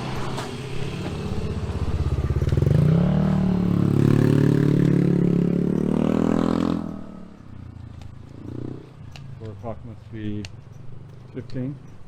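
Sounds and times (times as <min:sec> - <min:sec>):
motorcycle engine pulling away: 0:00.0 - 0:07.5.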